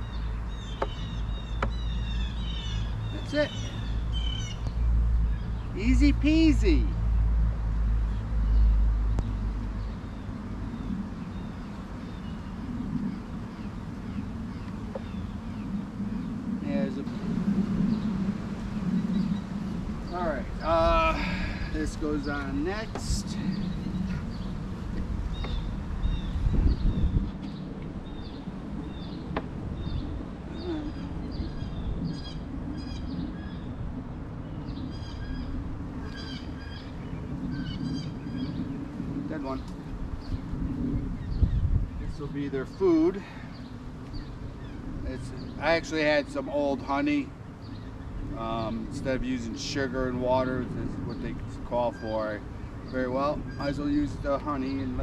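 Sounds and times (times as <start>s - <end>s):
honeybees buzzing: 0.0s - 33.7s
low outdoor rumble: 0.0s - 55.0s
small birds chirping: 0.0s - 55.0s
faint bird chirps: 25.3s - 33.6s.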